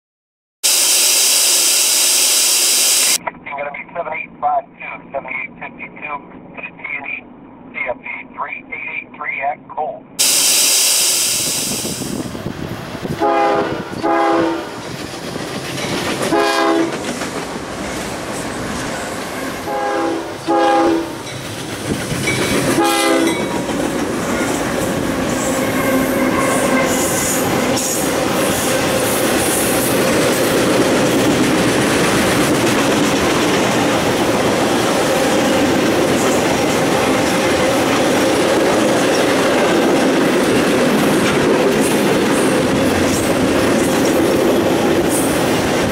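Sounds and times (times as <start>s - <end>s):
locomotive horn blasts: 13.2s - 14.8s, 16.3s - 16.9s, 19.6s - 21.2s, 22.8s - 23.4s
freight train wheels clattering: 14.8s - 18.0s, 21.2s - 26.3s.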